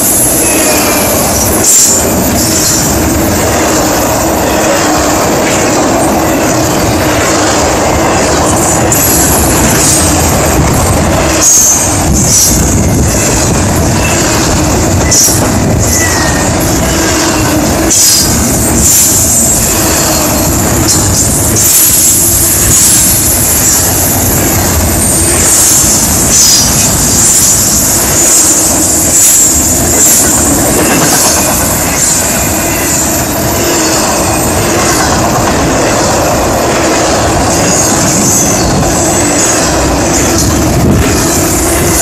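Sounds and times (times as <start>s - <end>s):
high-pitched wheel squeal: 0.0s - 3.0s, 11.4s - 35.2s, 37.5s - 40.5s
steel wheels rumbling on rail: 0.0s - 42.0s
wheels clacking over rail joints: 0.0s - 42.0s.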